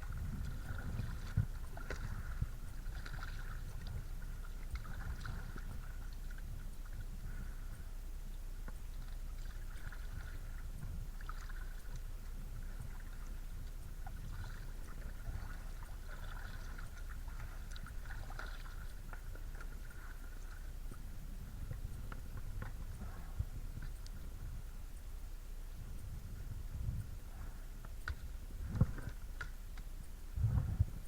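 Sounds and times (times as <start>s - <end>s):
water trickling: 0.0s - 7.6s, 8.7s - 24.2s
paddle strokes splashing water: 0.0s - 7.9s, 8.7s - 24.5s
steady low rumble: 0.0s - 31.0s.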